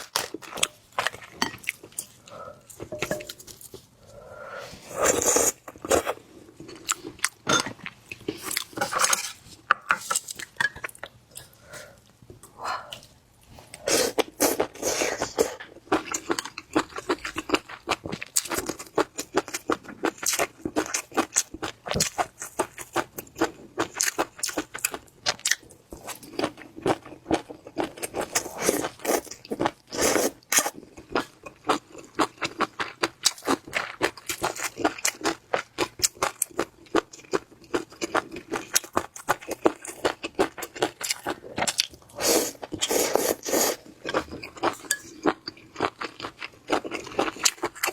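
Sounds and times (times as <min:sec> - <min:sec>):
crunching and wet chewing: 0:30.4 - 0:47.9.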